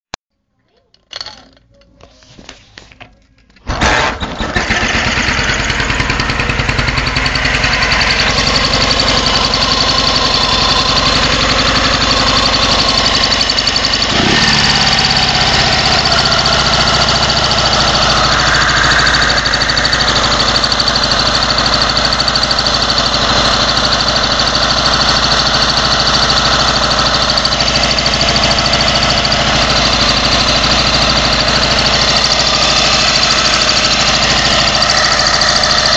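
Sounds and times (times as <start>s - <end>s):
motorcycle engine starting and running: 3.4s - 35.9s
high engine whistle: 7.6s - 21.2s.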